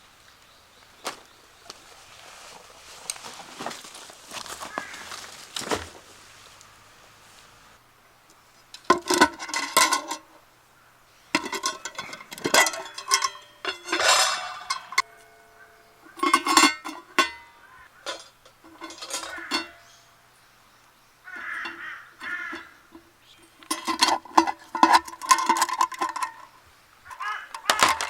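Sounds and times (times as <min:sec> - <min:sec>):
metal cookware clattering: 0:08.9 - 0:10.4, 0:11.3 - 0:20.1, 0:21.3 - 0:28.0.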